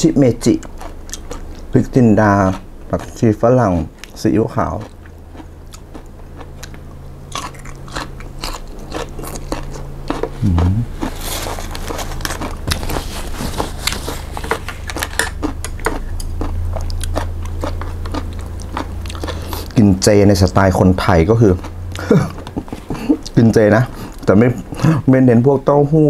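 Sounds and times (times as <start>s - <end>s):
steady low hum: 0.0s - 26.0s
person chewing crunchy vegetables: 0.4s - 25.0s
person humming: 10.3s - 11.1s, 22.0s - 23.2s.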